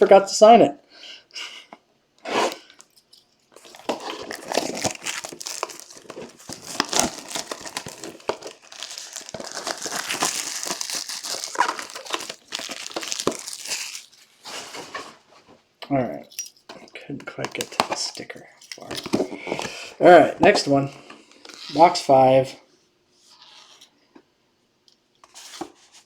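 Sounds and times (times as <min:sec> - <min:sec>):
plastic packaging crinkling: 0:03.5 - 0:15.0.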